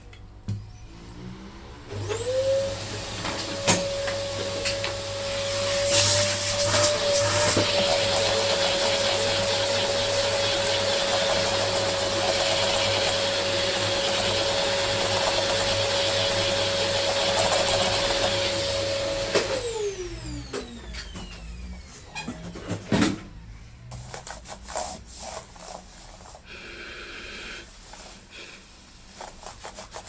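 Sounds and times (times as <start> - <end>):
electric air blower running: 1.1 - 22.1.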